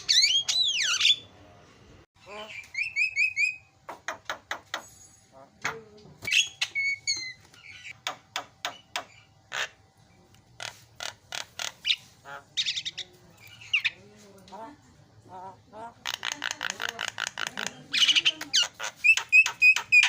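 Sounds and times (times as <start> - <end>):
bird singing harsh clicks and chatter: 6.2 - 14.0, 16.0 - 20.0.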